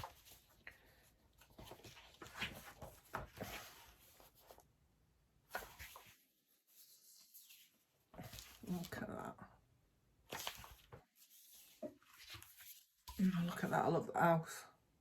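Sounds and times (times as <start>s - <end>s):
book pages turning: 0.0s - 4.7s, 5.4s - 9.1s, 10.2s - 13.8s.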